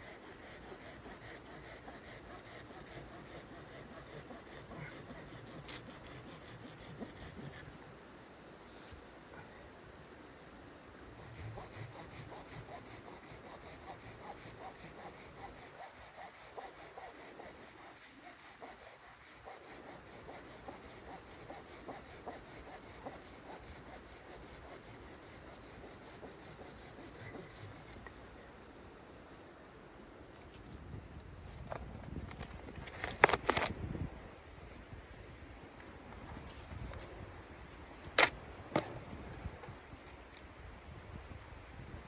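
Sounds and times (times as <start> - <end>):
hand saw cutting wood: 0.0 - 7.7, 11.1 - 28.0.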